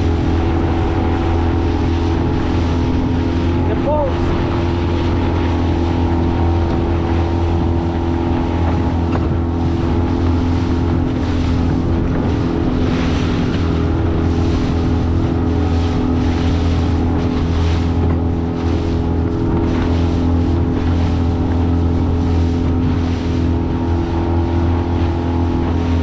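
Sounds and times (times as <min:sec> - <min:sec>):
outboard motor running: 0:00.0 - 0:26.0
water rushing: 0:00.0 - 0:26.0
wind noise on microphone: 0:00.0 - 0:26.0.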